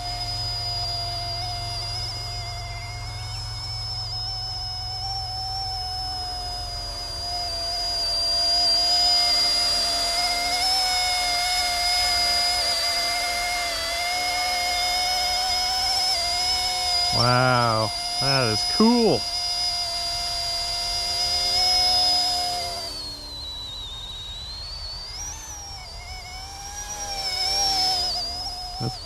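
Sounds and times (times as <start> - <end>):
model helicopter rotor whine: 0.0 - 29.0.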